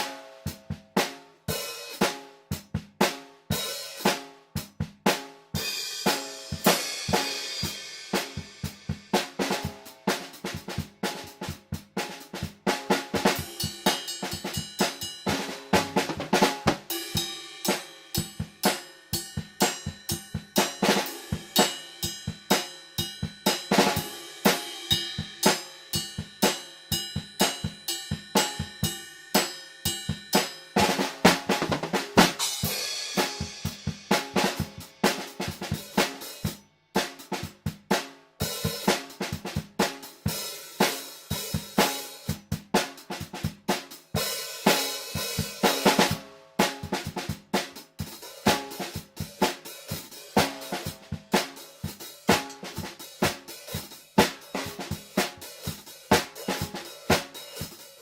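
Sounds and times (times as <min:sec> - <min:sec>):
snare drum strokes and rolls: 0:06.0 - 0:14.0, 0:14.8 - 0:18.9, 0:23.5 - 0:25.7, 0:30.4 - 0:36.2, 0:45.4 - 0:57.8.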